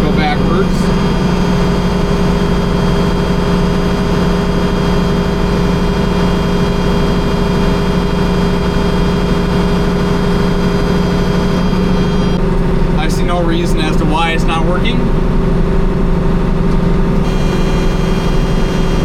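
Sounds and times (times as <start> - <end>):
faint steady whine: 0.0 - 19.0
tractor engine droning: 0.0 - 19.0.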